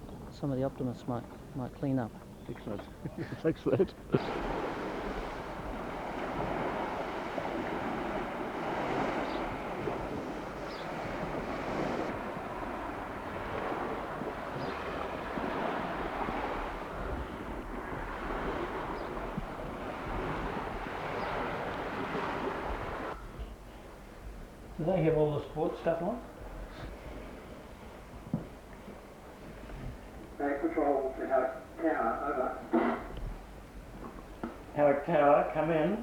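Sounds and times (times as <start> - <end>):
water rushing and slapping: 4.1 - 23.2
wind on microphone: 4.1 - 24.8, 32.9 - 34.4.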